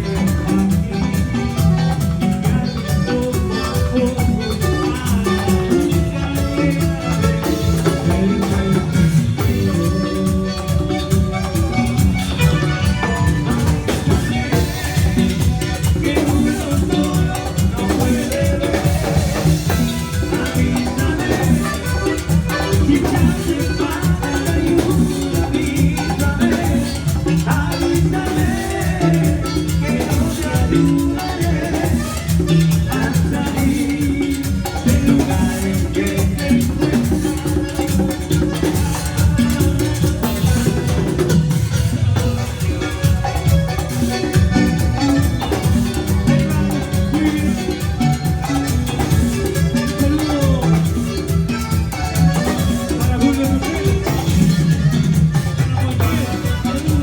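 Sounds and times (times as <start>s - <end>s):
band playing latin dance music: 0.0s - 57.0s
drums and percussion: 0.0s - 57.0s.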